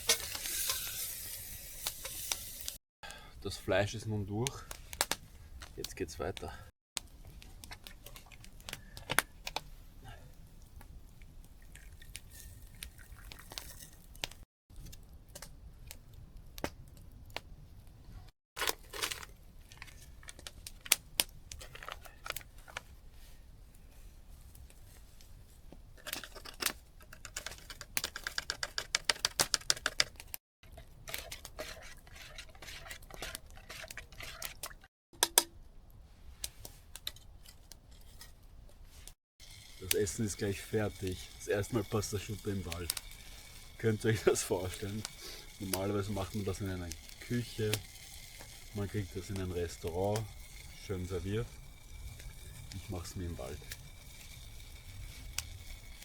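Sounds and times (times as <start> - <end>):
utensil scraping a cooking pot: 0.0 - 2.8, 30.6 - 34.9, 39.4 - 56.0.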